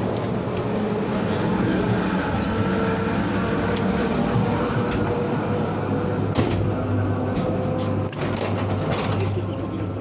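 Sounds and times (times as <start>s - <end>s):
train carriage running rumble: 0.0s - 10.0s.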